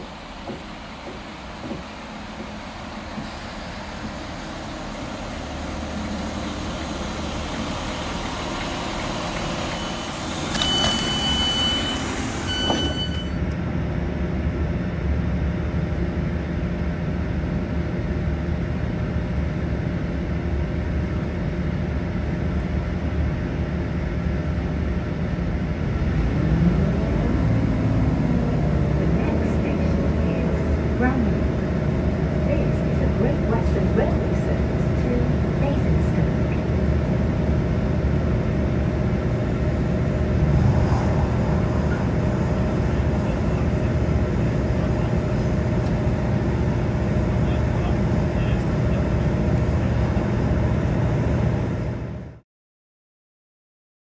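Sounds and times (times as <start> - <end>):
diesel engines idling hum: 0.0 - 52.4
diesel train arriving: 0.0 - 52.4
high brake squeal: 9.5 - 13.4.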